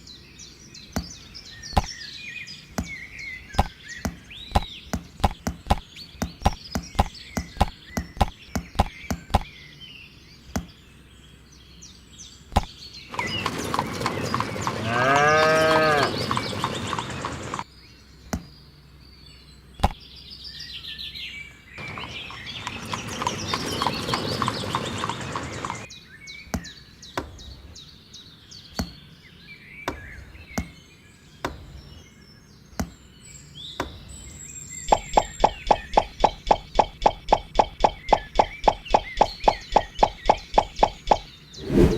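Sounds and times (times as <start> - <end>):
sharp knocks and clicks: 3.6 - 9.5
fast run of ticks: 12.6 - 17.6, 34.9 - 41.9
hooves clip-clopping: 13.1 - 15.0, 15.7 - 17.6
horse whinnying: 14.8 - 16.2.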